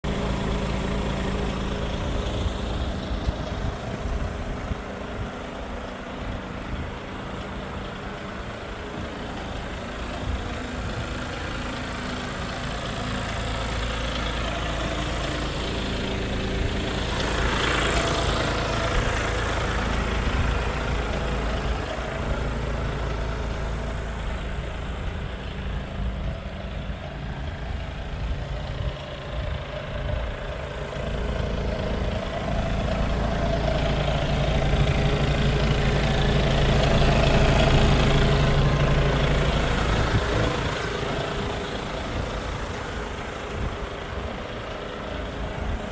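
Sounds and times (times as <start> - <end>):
truck diesel engine idling: 0.0 - 45.9.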